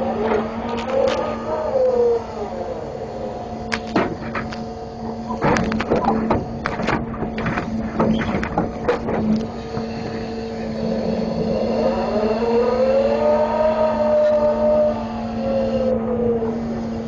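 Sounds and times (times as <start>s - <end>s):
truck engine running: 0.0s - 17.0s
knocks and clanks of grapple: 5.3s - 9.5s
engine revving up: 10.6s - 16.8s.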